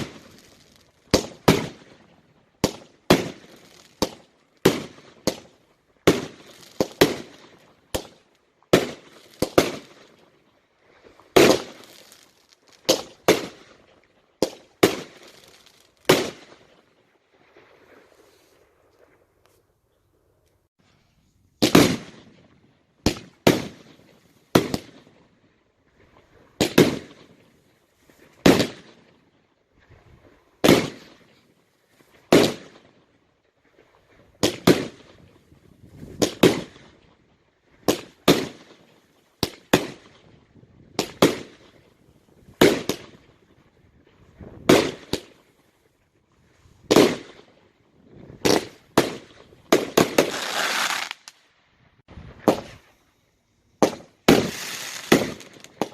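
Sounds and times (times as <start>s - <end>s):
fireworks bangs: 0.0s - 10.2s, 11.2s - 13.8s, 14.4s - 16.8s, 21.6s - 25.1s, 26.6s - 27.5s, 28.1s - 29.2s, 30.6s - 31.4s, 32.2s - 33.0s, 35.9s - 36.9s, 37.9s - 38.8s, 41.0s - 43.3s, 44.4s - 45.4s, 46.8s - 47.5s, 48.3s - 51.4s, 52.1s - 53.0s, 53.8s - 55.9s.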